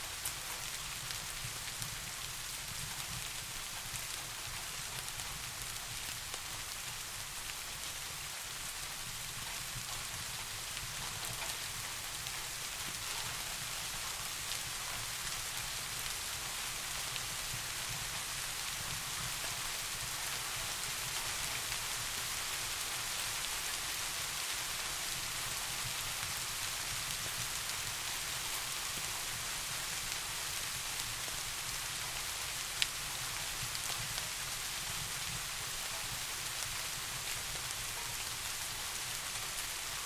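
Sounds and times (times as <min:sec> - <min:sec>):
steady rain hiss: 0:00.0 - 0:40.0
raindrop ticks: 0:09.4 - 0:16.2, 0:32.8 - 0:40.0.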